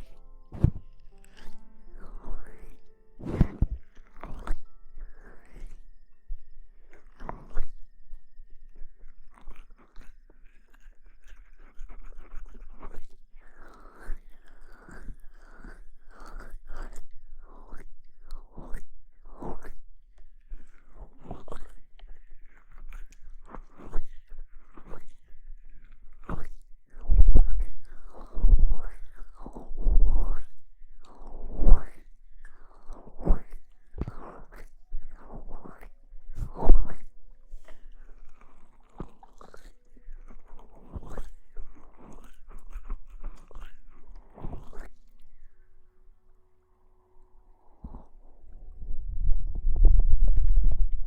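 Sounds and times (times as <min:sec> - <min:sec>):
rustling and scratching on microphone: 0:00.0 - 0:05.8, 0:22.4 - 0:45.2, 0:47.8 - 0:51.0.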